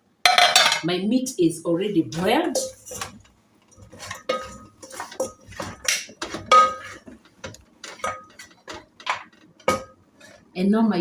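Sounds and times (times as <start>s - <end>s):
metal pot and utensils clanking: 0.3s - 0.8s, 2.4s - 10.5s.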